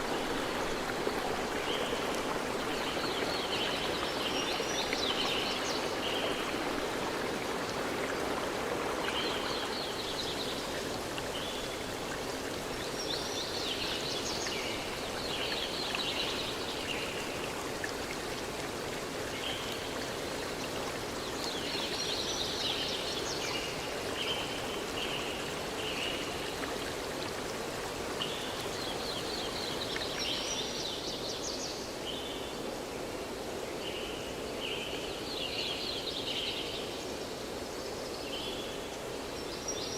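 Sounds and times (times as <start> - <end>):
running water: 0.0 - 34.7.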